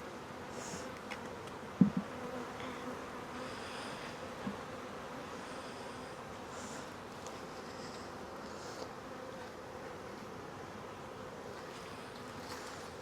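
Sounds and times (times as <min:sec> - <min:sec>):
bees buzzing: 0:00.0 - 0:13.0
low knocks: 0:01.8 - 0:02.1.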